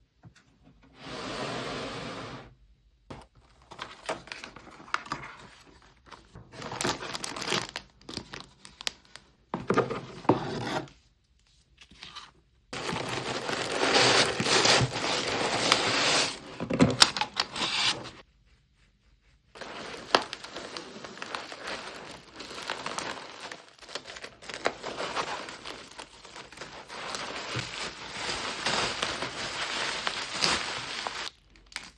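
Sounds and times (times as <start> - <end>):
packaging tearing and crinkling: 6.6 - 9.2, 12.8 - 18.2, 19.6 - 31.9
box scraping and rubbing: 9.8 - 10.9, 12.8 - 18.2, 19.6 - 31.2.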